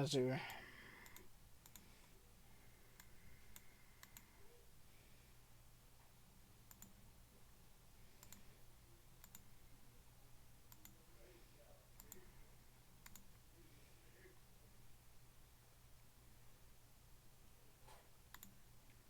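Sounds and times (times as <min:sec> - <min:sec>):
low background hum: 0:00.0 - 0:19.0
computer mouse clicks: 0:01.0 - 0:02.2, 0:03.0 - 0:04.3, 0:06.7 - 0:07.0, 0:08.1 - 0:08.5, 0:09.2 - 0:09.5, 0:10.7 - 0:11.0, 0:12.0 - 0:12.3, 0:13.0 - 0:13.4, 0:18.3 - 0:18.6.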